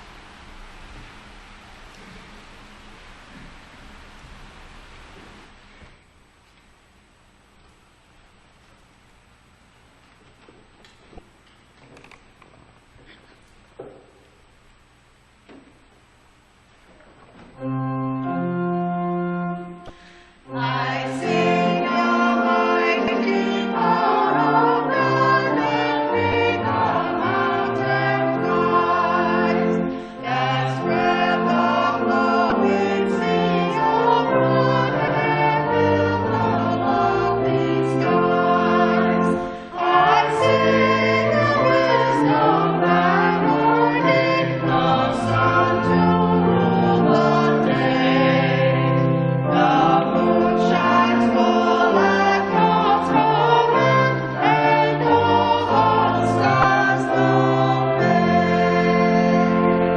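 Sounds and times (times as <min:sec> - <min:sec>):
choir singing with accompaniment: 0:17.6 - 0:59.9.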